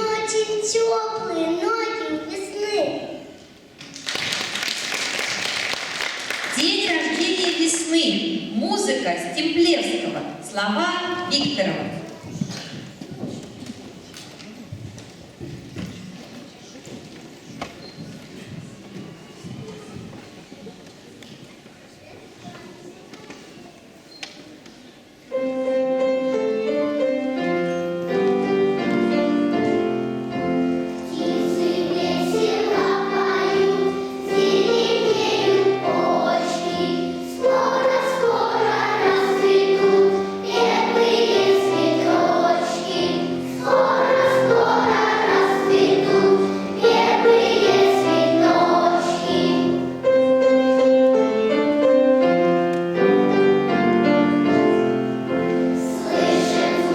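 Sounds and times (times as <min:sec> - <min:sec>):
piano accompaniment: 0:25.2 - 0:56.9
children's choir singing: 0:25.3 - 0:52.2, 0:52.9 - 0:56.9.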